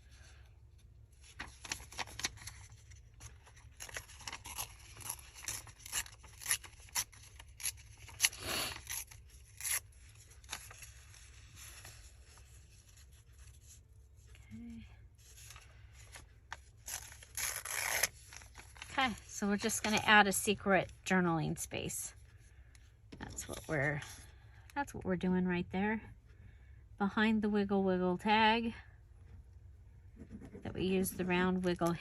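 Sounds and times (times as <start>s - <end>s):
paper rustling and clicking: 1.2s - 8.4s.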